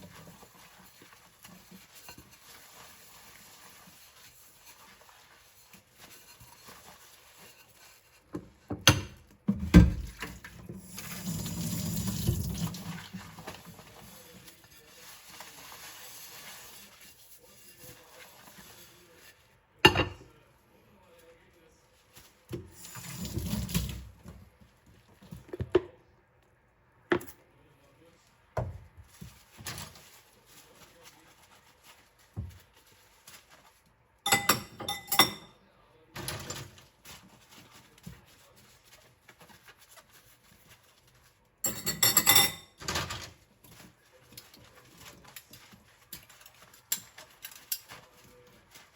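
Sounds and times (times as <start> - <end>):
faint running water: 0.0 - 25.9, 27.6 - 48.9
dishes clinking in a sink: 19.8 - 20.4, 34.2 - 36.8, 41.6 - 48.5.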